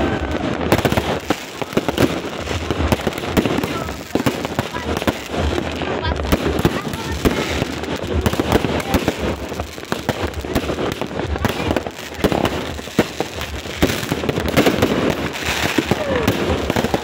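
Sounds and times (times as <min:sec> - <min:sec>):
fireworks cracks and bangs: 0:00.0 - 0:17.0.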